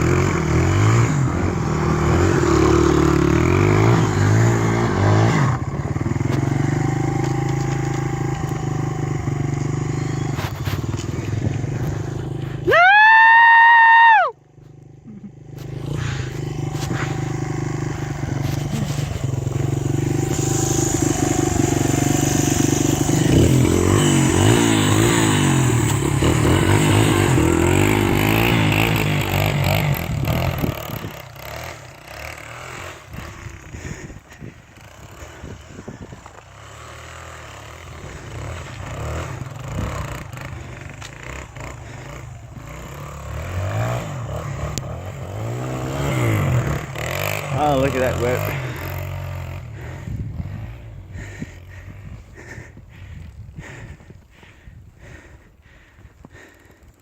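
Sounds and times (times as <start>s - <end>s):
dirt bike engine revving: 0.0s - 56.8s.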